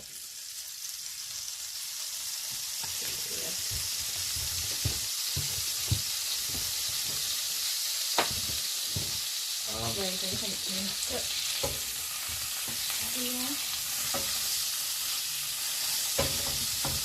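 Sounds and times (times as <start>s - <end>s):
fish sizzling in a pan: 0.0s - 17.0s
utensil clicks on pan: 16.1s - 17.0s.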